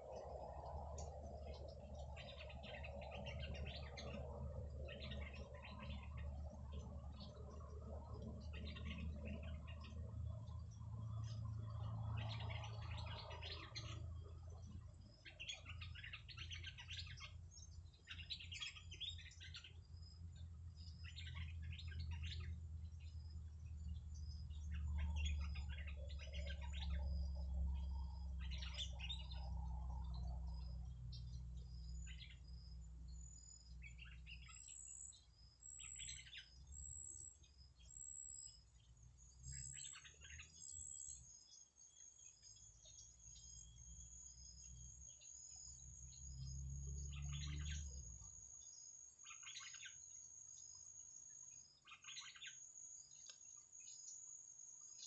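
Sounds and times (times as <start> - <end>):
steady low rumble: 0.0 - 15.2
small birds twittering: 0.0 - 55.0.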